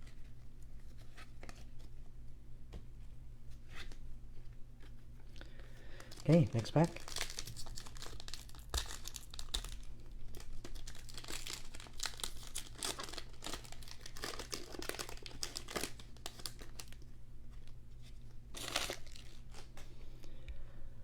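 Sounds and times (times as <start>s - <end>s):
plastic wrapper crinkling and tearing: 4.8s - 19.9s.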